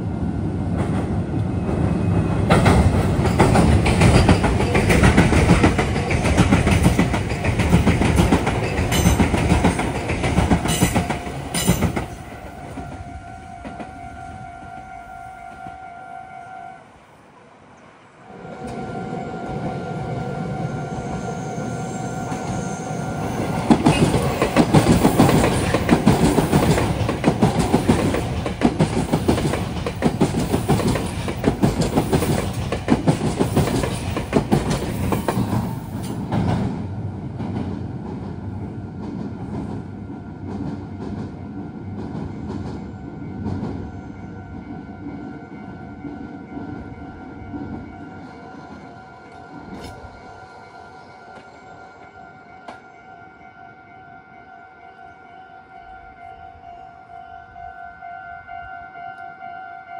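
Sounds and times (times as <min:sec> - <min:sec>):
electric train passing at speed: 0:00.0 - 0:59.9
train wheels clattering over rail joints: 0:02.4 - 0:12.3, 0:23.4 - 0:36.7
level crossing warning bell: 0:41.3 - 0:59.9.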